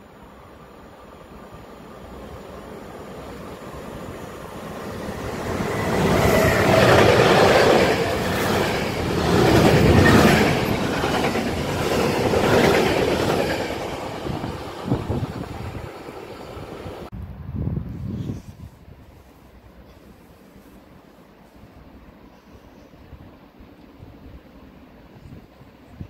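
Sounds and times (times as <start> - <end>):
freight train rumbling past: 0.0 - 17.5.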